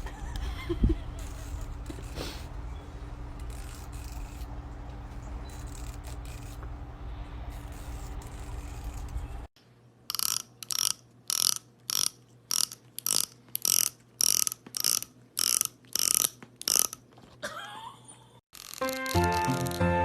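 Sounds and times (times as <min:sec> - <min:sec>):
comb teeth strummed: 0:18.6 - 0:20.0.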